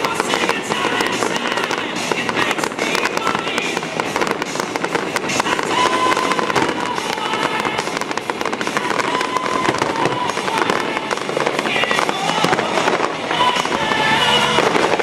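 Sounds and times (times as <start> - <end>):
fireworks bursts and crackling: 0.0 - 15.0
fireworks whistling: 0.0 - 15.0.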